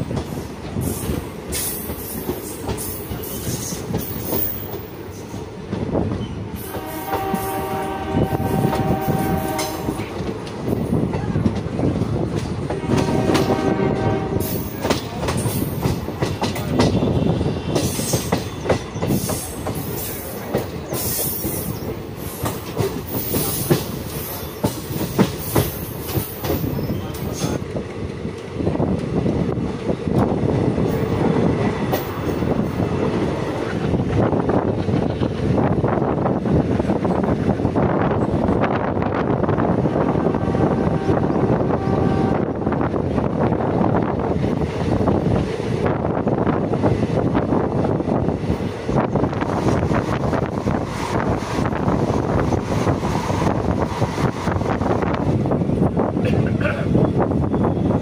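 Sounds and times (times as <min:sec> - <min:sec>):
train wheels clicking over rail joints: 0:00.0 - 0:07.6, 0:08.3 - 0:40.1
train horn blasts: 0:06.6 - 0:10.1, 0:12.8 - 0:14.7, 0:16.9 - 0:18.1, 0:40.2 - 0:42.7.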